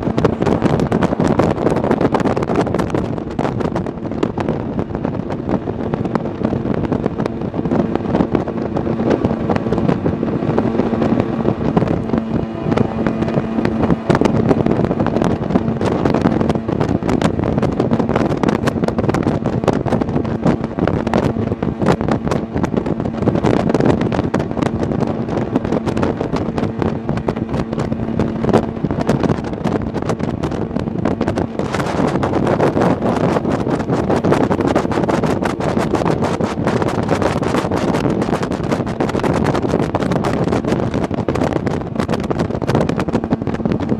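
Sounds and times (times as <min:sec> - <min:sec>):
jet boat engine droning: 0:00.0 - 0:43.9
wind buffeting microphone: 0:00.0 - 0:43.9.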